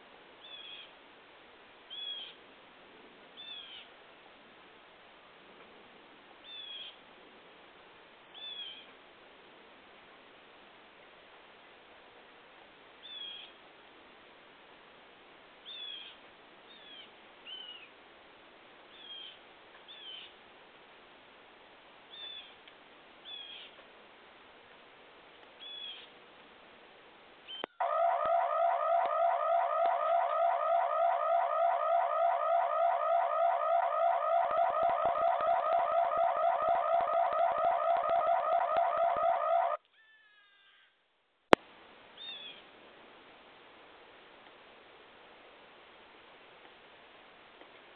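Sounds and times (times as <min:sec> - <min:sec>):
pulsing electronic tone: 0:27.8 - 0:39.8.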